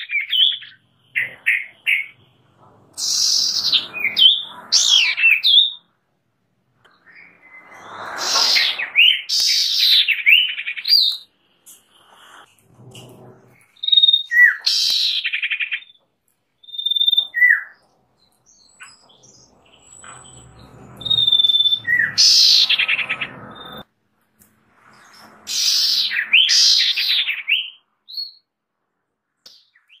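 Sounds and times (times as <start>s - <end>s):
bird singing with trills: 3.0s - 5.9s, 13.7s - 16.0s, 16.6s - 23.8s.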